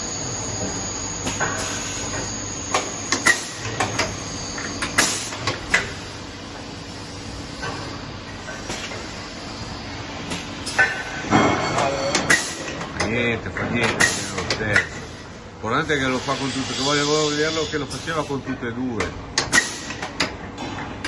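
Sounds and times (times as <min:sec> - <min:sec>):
thin high whine: 0:00.0 - 0:05.0, 0:15.8 - 0:18.4
machining center humming: 0:00.0 - 0:21.0.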